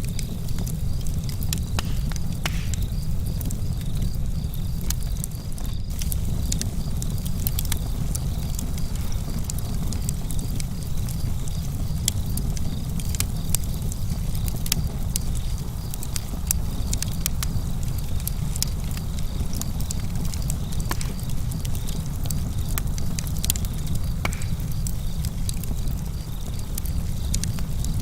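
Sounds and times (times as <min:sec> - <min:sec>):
campfire crackling: 0:00.0 - 0:28.0.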